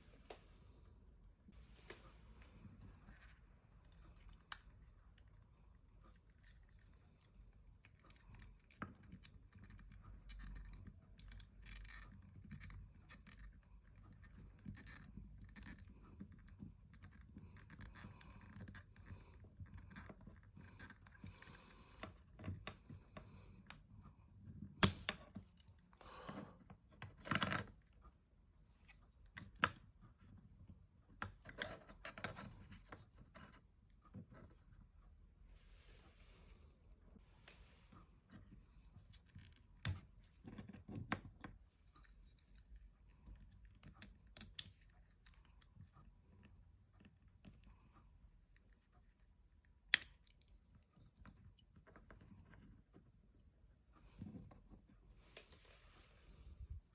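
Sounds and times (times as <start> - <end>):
plastic parts scratching and clicking: 3.0 - 23.1.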